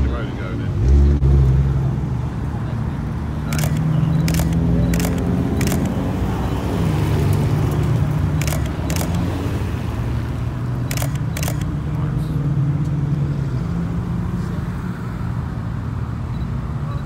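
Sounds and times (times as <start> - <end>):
car engines running at low revs: 0.0 - 14.8
camera shutter clicks: 3.4 - 6.0, 8.3 - 9.4, 10.8 - 11.8.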